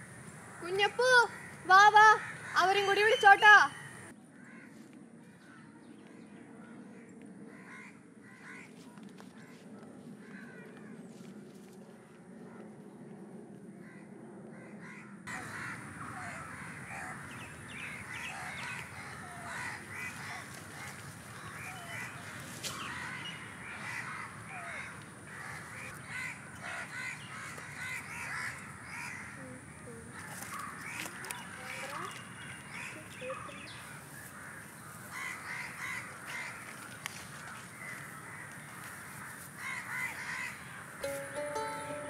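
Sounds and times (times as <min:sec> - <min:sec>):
birds calling: 0:00.0 - 0:04.7, 0:14.8 - 0:42.0.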